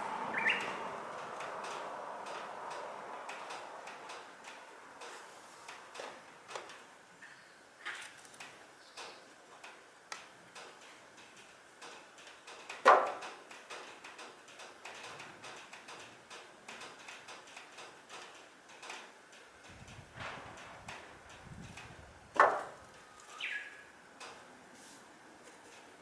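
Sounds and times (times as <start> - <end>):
tools clicking and tapping: 7.9 - 20.0.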